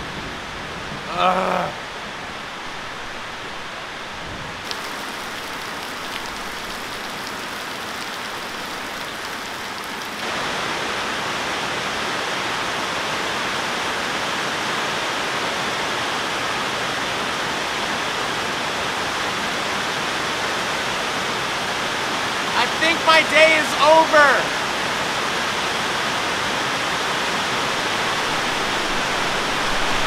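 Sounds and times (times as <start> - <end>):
heavy rain splashing on gravel: 4.6 - 14.3, 19.9 - 30.0.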